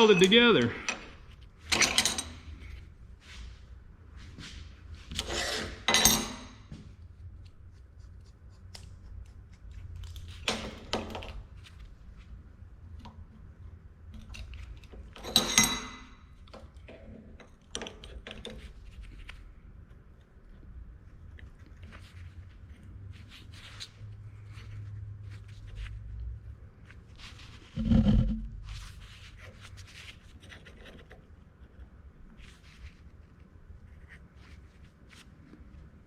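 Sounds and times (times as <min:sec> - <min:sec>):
small scrapes and clicks: 0:07.2 - 0:10.6, 0:14.1 - 0:15.2, 0:16.3 - 0:36.0.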